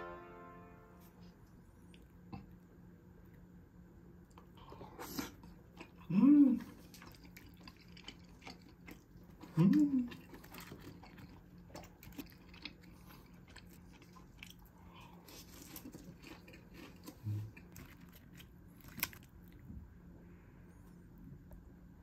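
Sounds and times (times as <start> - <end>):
close-miked chewing: 4.2 - 19.8.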